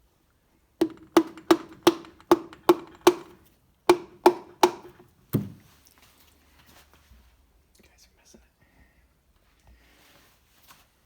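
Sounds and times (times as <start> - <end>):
sharp ringing knocks on piston: 0.8 - 5.1.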